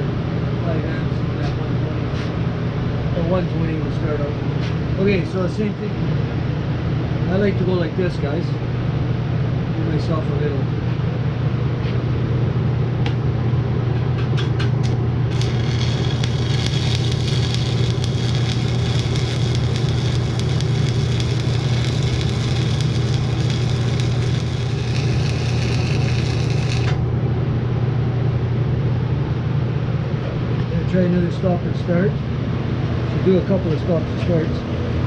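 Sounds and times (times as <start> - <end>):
low hum: 10.5 - 30.8
welding arc crackling sizzle: 14.8 - 27.1.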